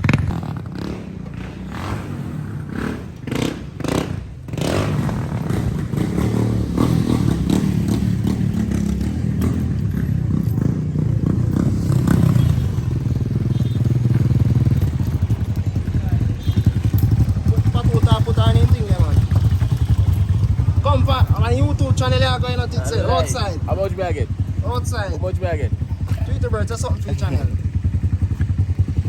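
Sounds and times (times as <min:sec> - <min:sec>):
motorcycle engine rumbling: 0:00.0 - 0:29.0
knocks and clatters: 0:03.3 - 0:12.4.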